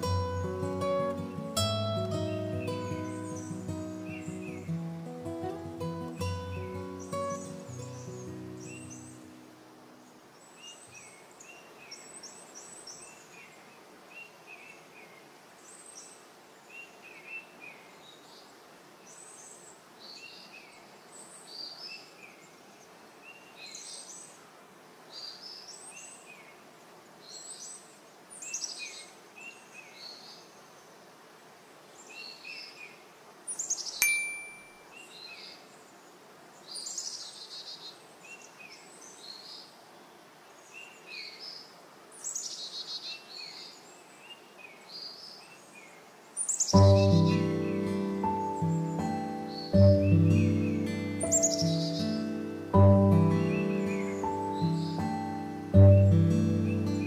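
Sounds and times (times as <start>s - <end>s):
faint outdoor hiss: 0.0s - 57.0s
songbirds chirping: 0.0s - 57.0s
sharp click with ringing tone: 34.0s - 34.8s.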